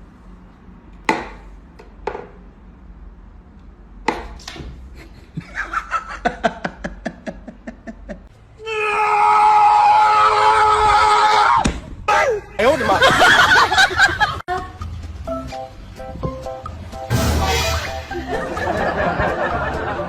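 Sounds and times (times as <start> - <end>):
person laughing: 5.0 - 8.3, 18.0 - 20.0
high-pitched wail: 17.1 - 18.7.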